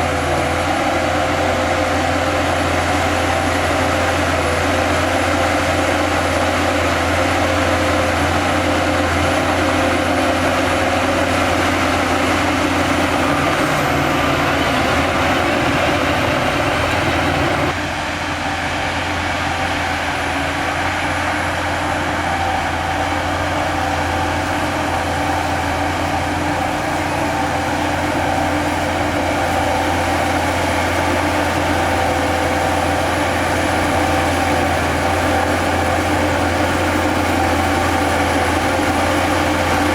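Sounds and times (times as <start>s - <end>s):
diesel machinery droning: 0.0s - 39.9s.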